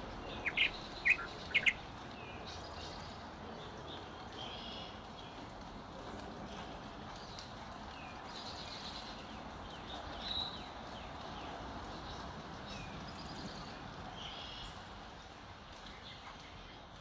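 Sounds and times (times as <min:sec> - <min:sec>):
songbirds chirping: 0:00.0 - 0:05.5
low background hiss: 0:00.0 - 0:05.9.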